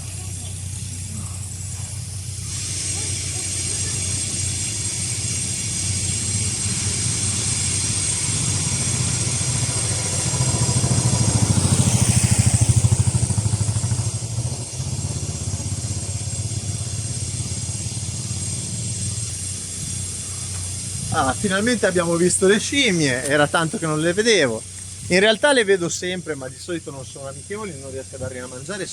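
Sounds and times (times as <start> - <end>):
vehicle passing by: 0.0 - 25.4
vehicle engine running: 0.0 - 28.9.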